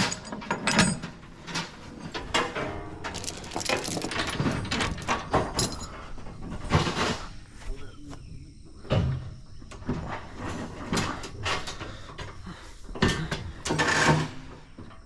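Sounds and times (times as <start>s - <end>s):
metal chains clanking: 0.0s - 7.4s, 13.0s - 14.6s.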